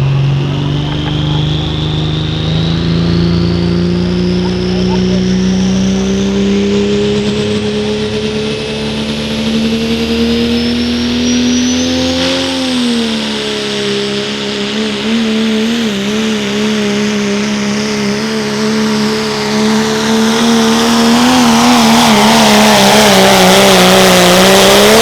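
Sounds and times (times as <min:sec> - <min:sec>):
high turbo whistle: 0:00.0 - 0:15.3
diesel truck engine under load: 0:00.0 - 0:25.0.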